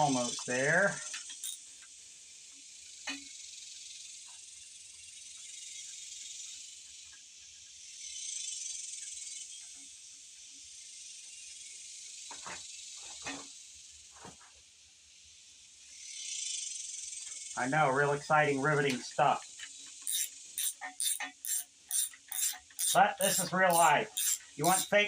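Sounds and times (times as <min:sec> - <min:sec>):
insects buzzing: 0:00.0 - 0:14.2, 0:19.3 - 0:25.0.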